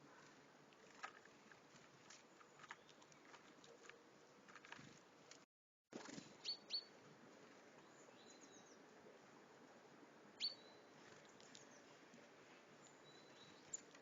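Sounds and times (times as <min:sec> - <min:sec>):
faint outdoor hiss: 0:00.0 - 0:05.4, 0:06.0 - 0:14.0
songbird chirping: 0:06.4 - 0:07.0, 0:07.7 - 0:08.9, 0:10.3 - 0:14.0.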